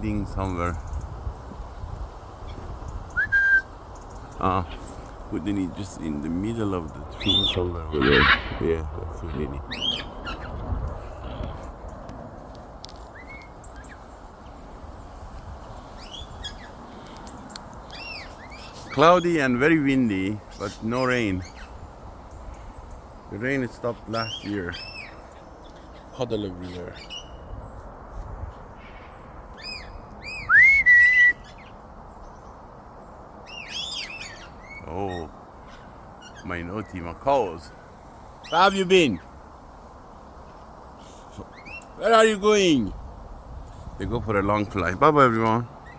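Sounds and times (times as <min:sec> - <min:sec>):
wind buffeting microphone: 0:00.0 - 0:45.9
short bird calls: 0:02.4 - 0:05.6, 0:06.5 - 0:12.0, 0:13.1 - 0:14.2, 0:15.0 - 0:27.8, 0:28.5 - 0:31.8, 0:33.5 - 0:42.9
loud rising whistle: 0:03.2 - 0:03.7, 0:30.3 - 0:31.4.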